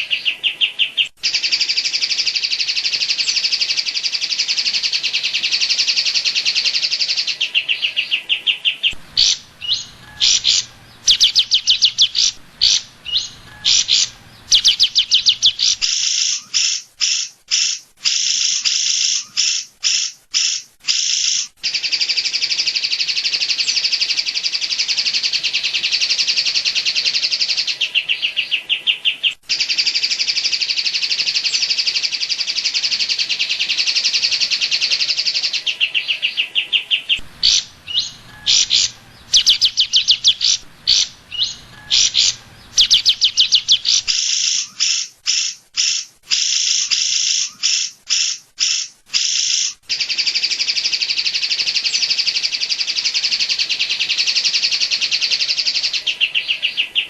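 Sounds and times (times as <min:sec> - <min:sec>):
bird singing rapid sharp bursts: 0:00.0 - 0:57.0
long bird trill: 0:09.1 - 0:22.2, 0:32.3 - 0:51.1.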